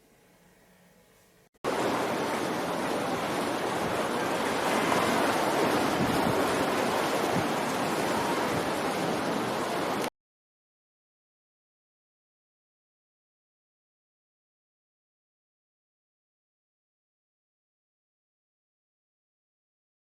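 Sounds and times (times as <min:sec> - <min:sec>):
steady rushing noise: 0:01.7 - 0:10.1.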